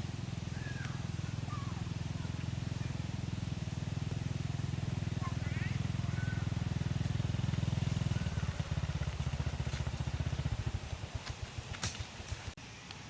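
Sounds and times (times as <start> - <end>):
engine putter: 0.0 - 12.6.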